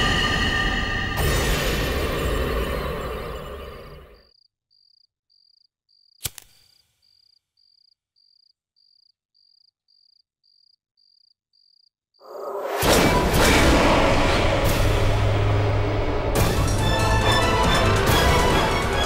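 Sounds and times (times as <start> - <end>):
crickets chirping: 2.8 - 12.6
lighter click: 6.2 - 6.7.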